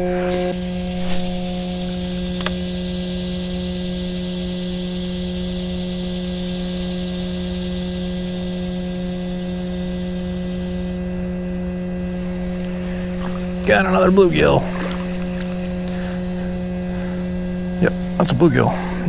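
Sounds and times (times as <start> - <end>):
steady hum: 11.9 - 19.0.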